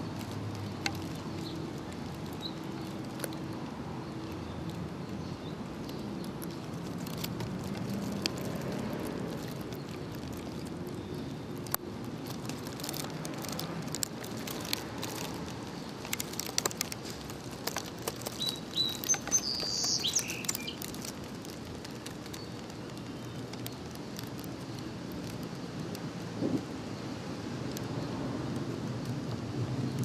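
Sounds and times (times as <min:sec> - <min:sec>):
small bird chirping: 0:00.0 - 0:08.6, 0:09.3 - 0:24.4
low background noise: 0:00.0 - 0:30.0.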